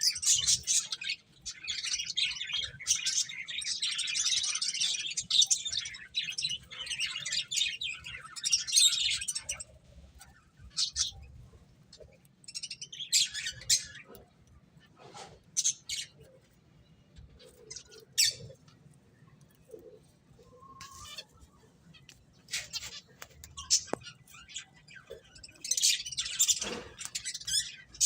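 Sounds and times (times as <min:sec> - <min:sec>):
finches chirping: 0:00.0 - 0:09.7.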